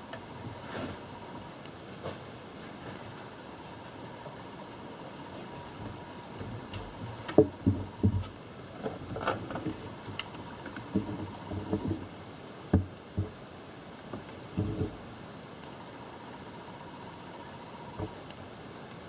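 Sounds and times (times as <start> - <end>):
low hiss: 0.0 - 19.0
tools knocking and clunking: 6.8 - 12.1.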